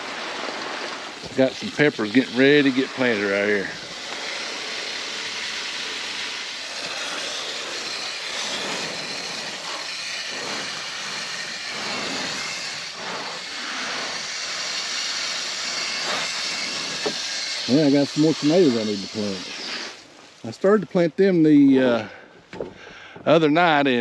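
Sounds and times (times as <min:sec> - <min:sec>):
water spraying from a hose: 0:00.0 - 0:20.8.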